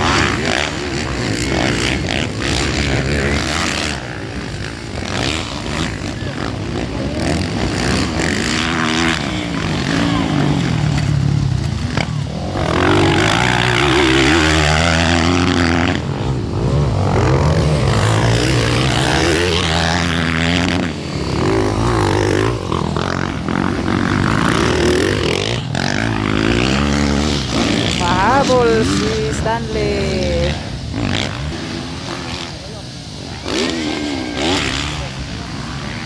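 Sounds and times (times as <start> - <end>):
dirt bike engines revving: 0.0 - 36.0.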